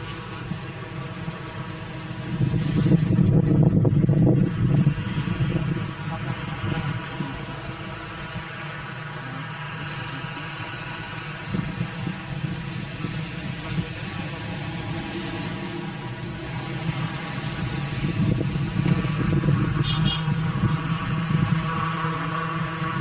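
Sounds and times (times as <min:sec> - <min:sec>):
grinding mill engine running: 0:00.0 - 0:23.0
high rattle: 0:06.1 - 0:21.3.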